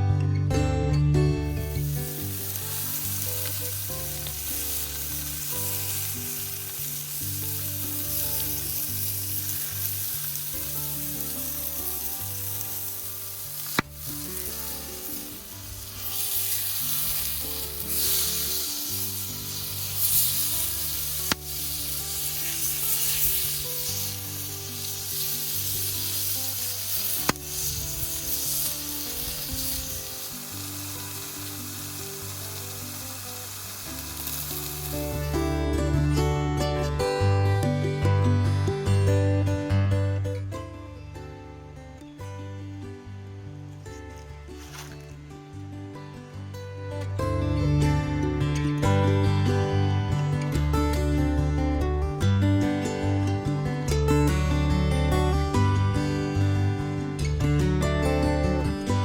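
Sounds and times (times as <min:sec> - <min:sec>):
background music with bass line: 0:00.0 - 0:59.0
food sizzling in a pan: 0:01.4 - 0:35.7, 0:44.0 - 0:45.2.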